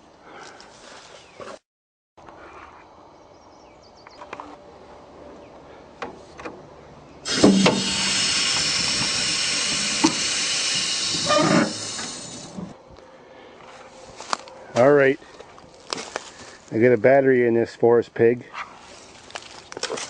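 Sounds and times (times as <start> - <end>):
loud steady hiss: 7.2 - 12.8.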